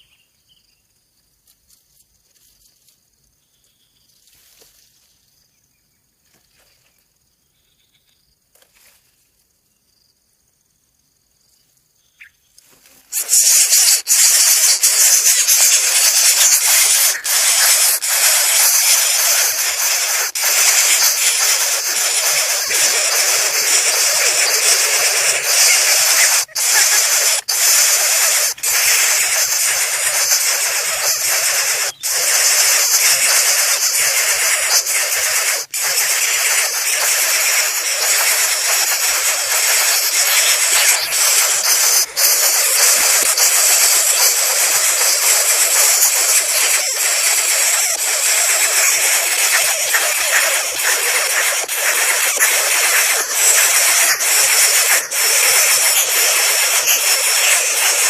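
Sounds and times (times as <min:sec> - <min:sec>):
loud steady hiss: 0:12.6 - 0:58.0.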